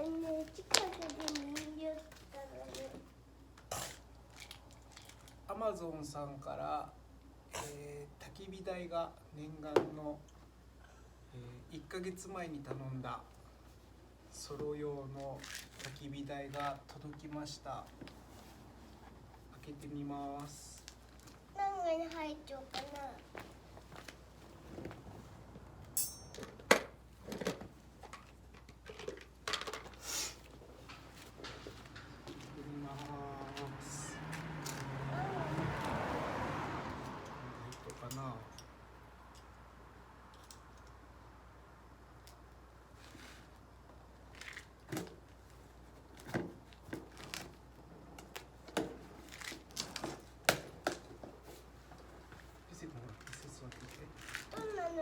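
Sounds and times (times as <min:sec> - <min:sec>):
packaging rustling and clicking: 0:00.0 - 0:02.9.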